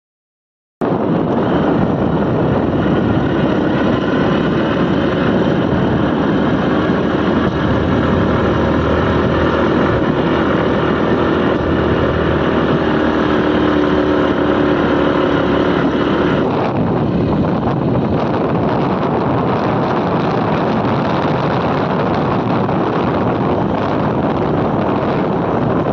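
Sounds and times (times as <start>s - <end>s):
wind buffeting microphone: 0.8s - 25.9s
motorcycle engine running: 0.9s - 25.9s.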